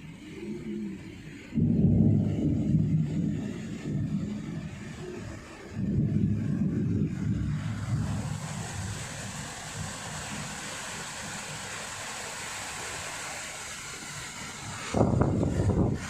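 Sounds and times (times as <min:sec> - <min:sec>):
wind buffeting microphone: 0:00.3 - 0:10.6, 0:14.6 - 0:16.0
storm wind rushing: 0:00.6 - 0:11.0, 0:14.6 - 0:16.0.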